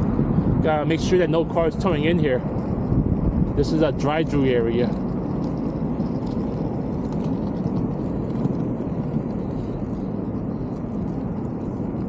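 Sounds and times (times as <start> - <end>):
skate wheels rolling on asphalt: 0.0 - 12.0.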